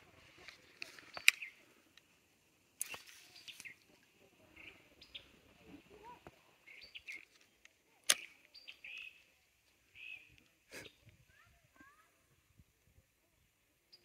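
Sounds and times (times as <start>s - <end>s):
small birds chirping: 0.2s - 12.1s, 13.1s - 14.0s
sharp click: 8.0s - 8.4s.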